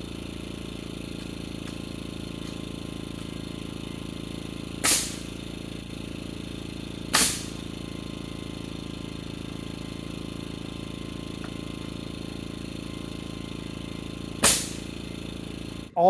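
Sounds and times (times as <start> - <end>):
motor hum: 0.0 - 16.0
nail gun firing: 4.8 - 5.4, 7.0 - 7.7, 14.4 - 15.0.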